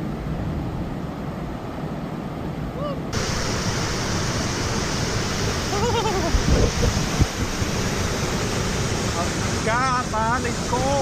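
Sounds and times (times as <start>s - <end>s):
person exclaiming: 2.8s - 3.1s
waterfall rushing: 2.8s - 11.0s.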